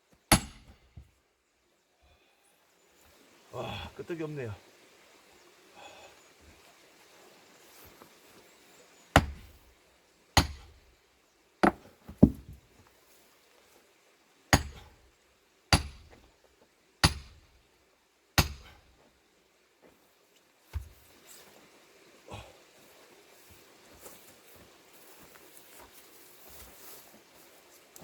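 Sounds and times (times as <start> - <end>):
hammer striking log: 0.3 - 1.1, 9.2 - 9.6, 10.4 - 10.8, 11.6 - 12.6, 14.5 - 14.9, 15.7 - 16.2, 17.0 - 17.5, 18.4 - 18.8.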